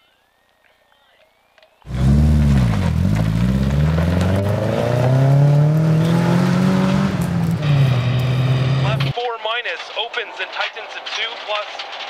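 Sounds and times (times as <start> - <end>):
rally car engine accelerating: 1.9 - 9.2.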